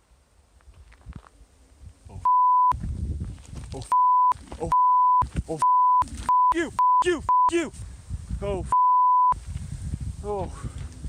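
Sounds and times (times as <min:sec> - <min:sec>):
censor beeps: 0:02.2 - 0:02.8, 0:03.9 - 0:07.6, 0:08.7 - 0:09.4
person shouting: 0:06.5 - 0:07.7.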